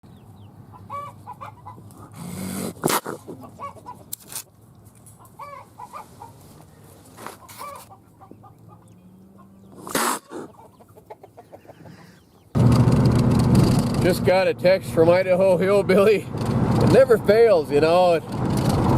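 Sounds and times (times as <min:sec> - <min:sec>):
chickens clucking: 0:00.1 - 0:12.6.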